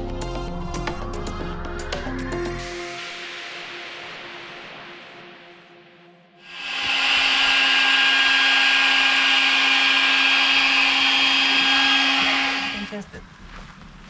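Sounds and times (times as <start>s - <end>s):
electric air pump humming: 6.4s - 13.0s.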